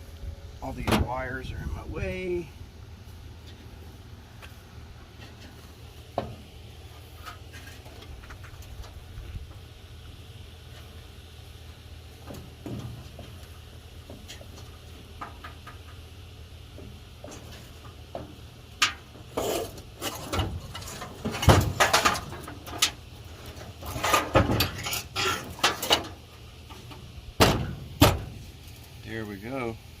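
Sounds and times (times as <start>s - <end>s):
steady low hum: 0.0s - 30.0s
metal clanking and scraping: 4.4s - 9.0s, 16.7s - 28.9s.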